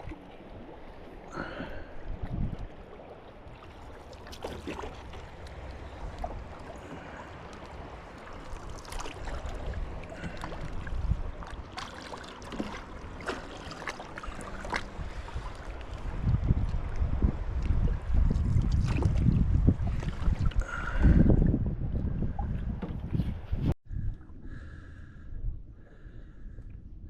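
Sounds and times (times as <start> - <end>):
paddle splashing in water: 0.0 - 21.3.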